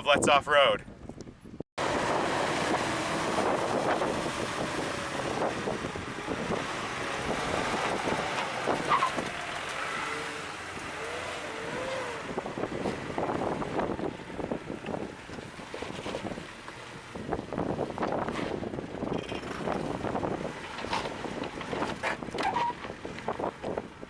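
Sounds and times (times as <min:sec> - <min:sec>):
wind buffeting the microphone: 0:00.0 - 0:24.0
off-road vehicles running: 0:01.8 - 0:24.0.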